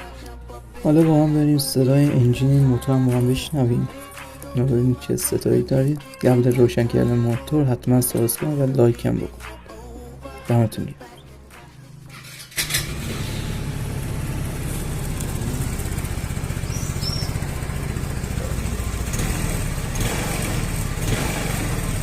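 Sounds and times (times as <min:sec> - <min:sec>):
scooter engine starting and idling: 0:12.0 - 0:22.0.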